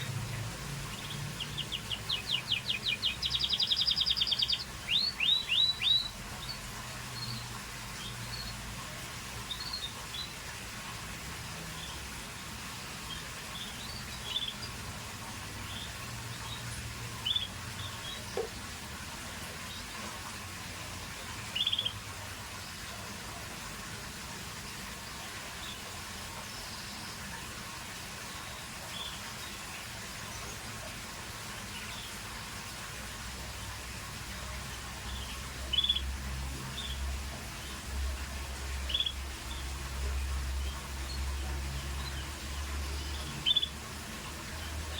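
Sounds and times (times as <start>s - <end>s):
canary chirping: 0.9s - 6.6s, 13.1s - 14.8s, 15.7s - 18.5s, 21.5s - 22.0s, 35.1s - 36.1s, 40.6s - 43.8s.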